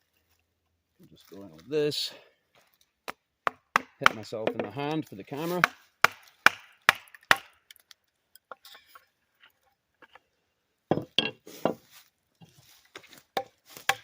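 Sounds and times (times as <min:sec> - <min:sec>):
wooden knocks on log: 0:03.1 - 0:04.7, 0:10.9 - 0:11.8.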